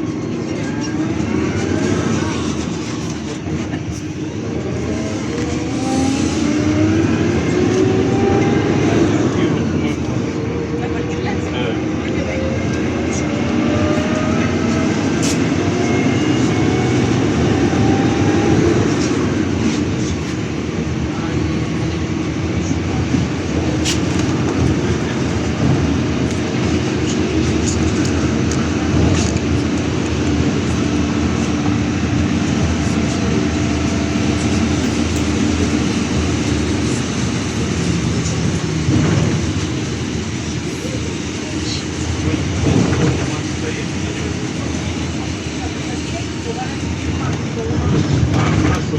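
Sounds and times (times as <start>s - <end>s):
bus engine and road noise: 0.0s - 48.9s
held drone: 0.1s - 10.6s.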